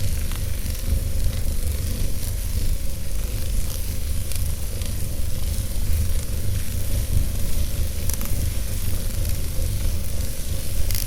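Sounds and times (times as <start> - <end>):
fire crackles: 0.0 - 11.0
fire flames rumbling and hissing: 0.0 - 11.0.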